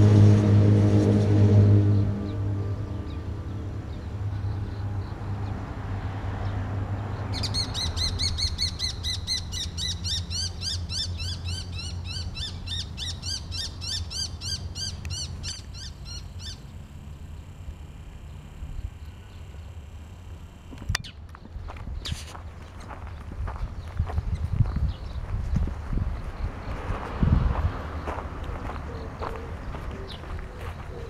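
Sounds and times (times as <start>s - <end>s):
low steady rumble: 0.0s - 7.3s
bird chirping rapidly: 7.2s - 16.7s.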